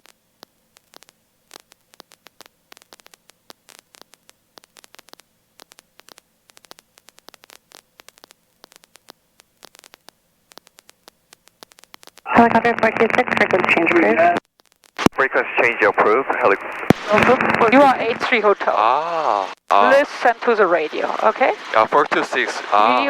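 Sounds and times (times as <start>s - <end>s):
crackling static: 0.0s - 23.0s
low steady hum: 15.0s - 23.0s.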